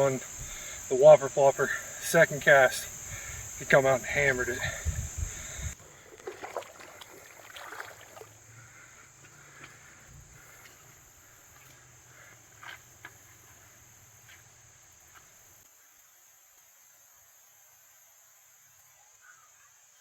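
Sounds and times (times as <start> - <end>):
shallow water sloshing: 0.0 - 8.8
high insect drone: 0.0 - 20.0.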